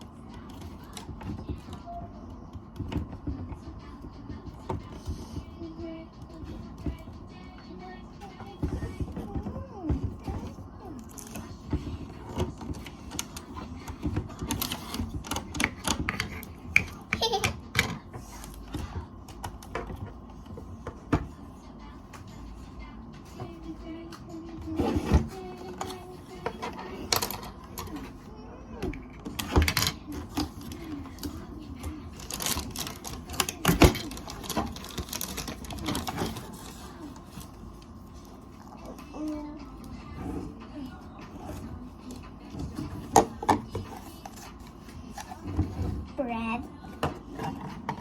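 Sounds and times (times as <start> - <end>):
plastic toy parts rattling: 11.0 - 20.1, 25.0 - 28.2, 29.1 - 37.5
plastic toy pieces rattling: 32.1 - 36.9.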